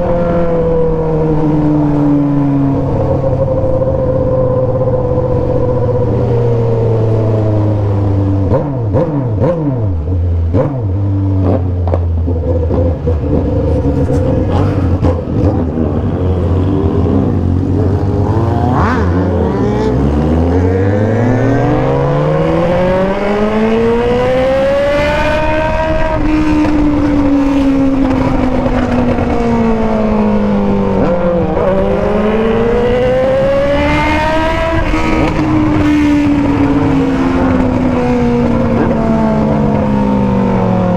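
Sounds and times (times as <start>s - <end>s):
motorcycle engines revving: 0.0s - 40.9s
exhaust crackles: 2.7s - 24.7s.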